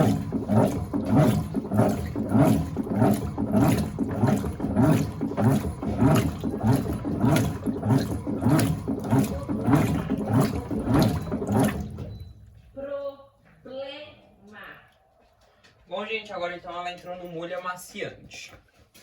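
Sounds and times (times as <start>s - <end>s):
washing machine agitator swishing water: 0.0s - 12.8s.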